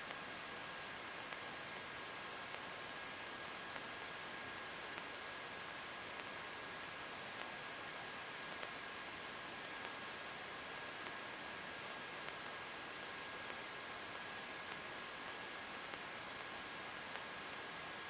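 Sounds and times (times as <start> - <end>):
electrical hiss: 0.0 - 18.0
thin high whine: 0.0 - 18.0
faint tick: 2.5 - 2.7, 8.6 - 8.8, 9.8 - 10.0, 13.4 - 13.6.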